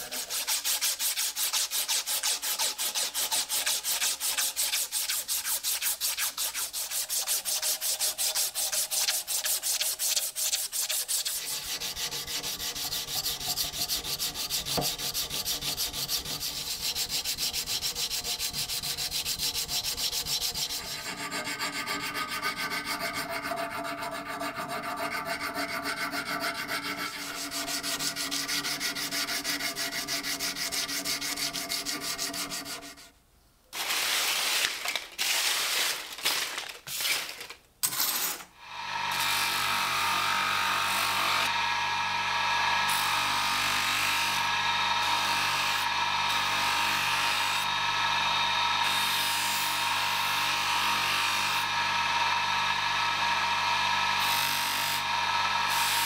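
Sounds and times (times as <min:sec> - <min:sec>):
sanding a hard workpiece: 0:00.0 - 0:33.1.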